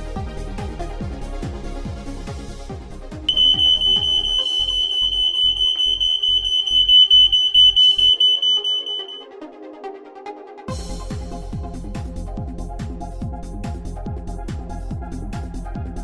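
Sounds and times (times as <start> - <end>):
smoke alarm high-pitched tone: 3.3 - 9.2
electronic background music: 3.3 - 10.6.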